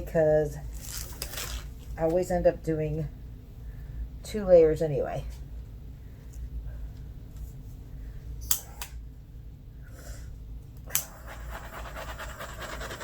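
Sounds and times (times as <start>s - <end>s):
torch igniter clicks: 8.4s - 9.0s.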